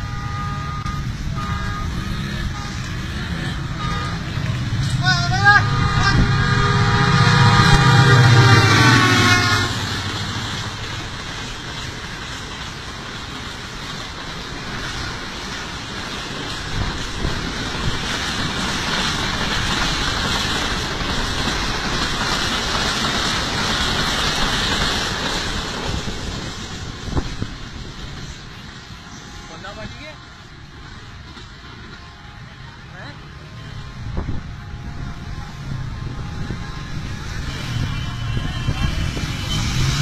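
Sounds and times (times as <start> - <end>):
train horn blast: 0.0 - 10.4, 36.3 - 40.0
passenger train passing: 0.0 - 40.0.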